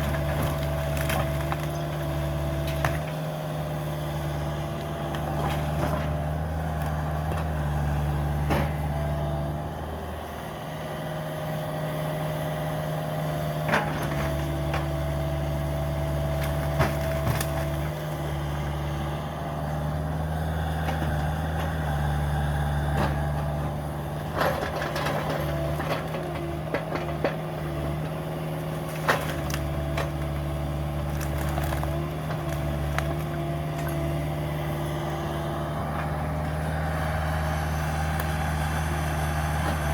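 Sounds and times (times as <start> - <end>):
demolition debris cracking: 0.0 - 3.0, 24.4 - 27.9, 28.8 - 34.4
excavator diesel engine running: 0.0 - 39.9.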